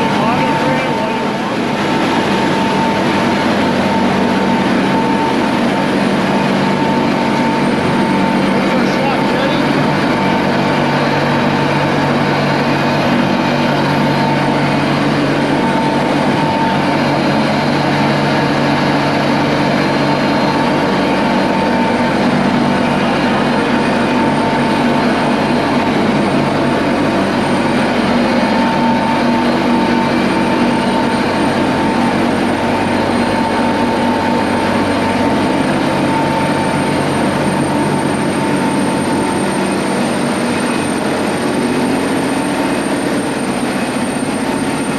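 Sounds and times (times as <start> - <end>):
engine room machinery drone: 0.0 - 44.9.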